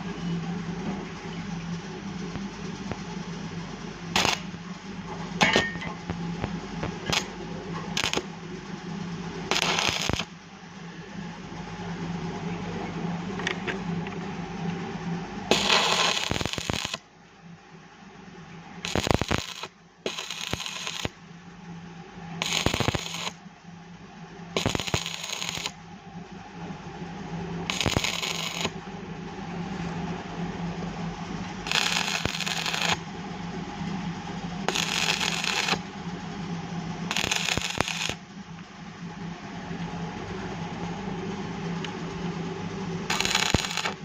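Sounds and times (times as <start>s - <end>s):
steady low hum: 0.0s - 44.0s
arc welding crackling: 4.1s - 8.3s, 9.4s - 10.3s, 15.5s - 17.0s, 18.8s - 21.2s, 22.4s - 23.4s, 24.6s - 25.8s, 27.6s - 28.8s, 31.6s - 33.0s, 34.6s - 35.9s, 37.0s - 38.2s, 43.1s - 44.0s.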